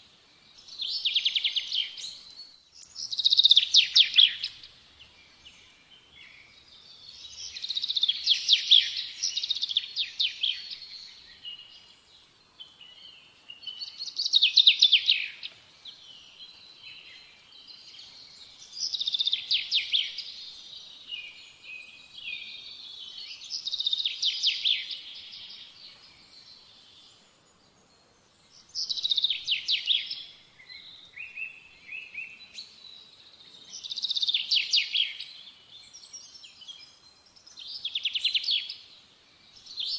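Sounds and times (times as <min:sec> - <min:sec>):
songbird trilling: 0:02.8 - 0:04.7.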